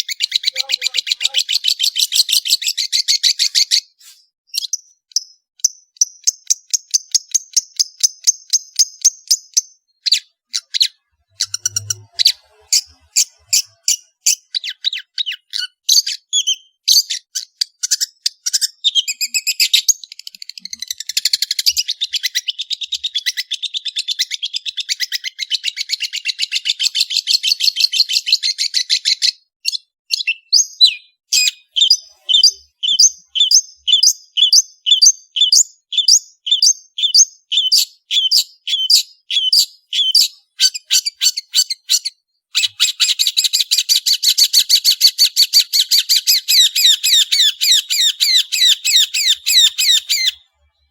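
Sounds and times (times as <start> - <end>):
shrike singing: 0.1 - 2.2.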